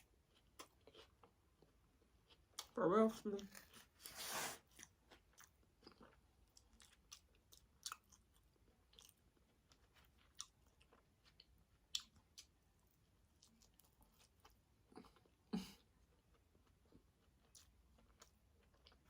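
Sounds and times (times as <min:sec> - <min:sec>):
chewing food: 0:00.0 - 0:19.0.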